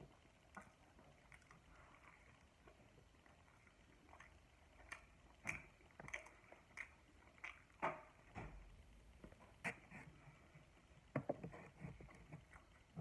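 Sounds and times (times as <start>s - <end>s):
person chewing with mouth smacks: 4.0s - 7.8s.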